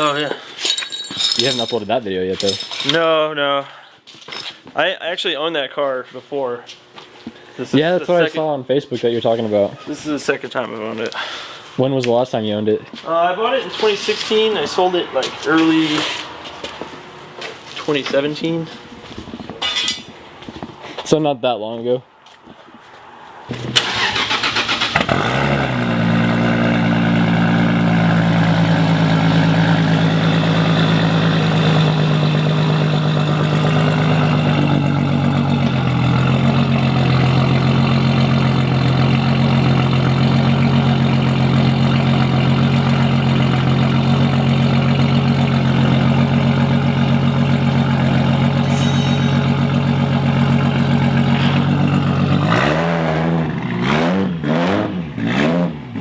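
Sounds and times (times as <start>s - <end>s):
car engine starting and idling: 23.5s - 54.3s.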